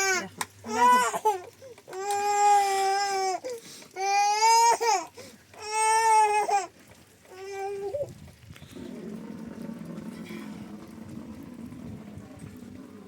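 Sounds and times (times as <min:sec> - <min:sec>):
baby crying: 0:00.0 - 0:06.7.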